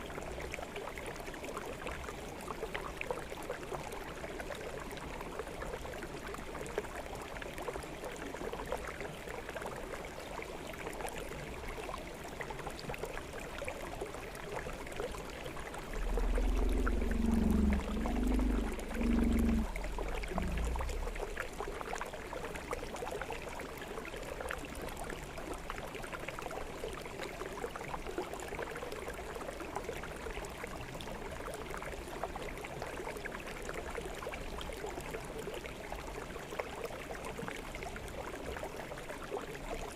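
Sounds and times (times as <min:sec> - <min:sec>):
forest stream flowing: 0:00.0 - 0:39.9
low rumble: 0:15.8 - 0:21.5.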